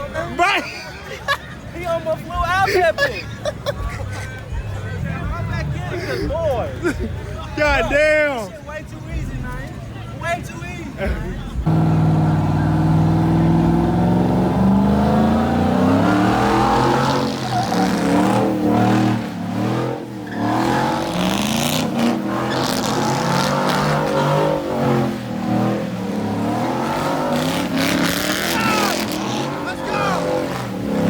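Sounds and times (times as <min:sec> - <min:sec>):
tires squealing: 0:07.5 - 0:31.0
car engine revving hard: 0:11.7 - 0:31.0.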